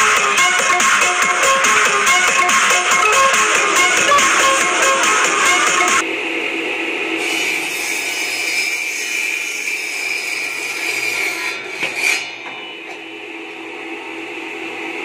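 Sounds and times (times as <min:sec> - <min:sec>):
circular saw cutting bamboo: 0:07.2 - 0:12.5.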